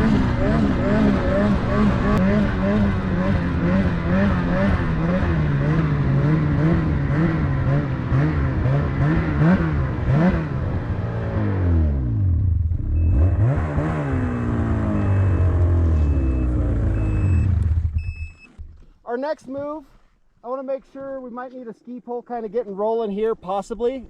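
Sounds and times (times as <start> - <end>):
snowmobile engine revving: 0.0 - 18.0
short high beeps: 14.1 - 18.5.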